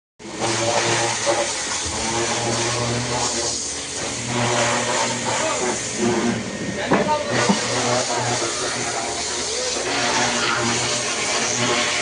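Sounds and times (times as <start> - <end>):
motor humming: 0.2 - 12.0
loud even hiss: 7.3 - 12.0.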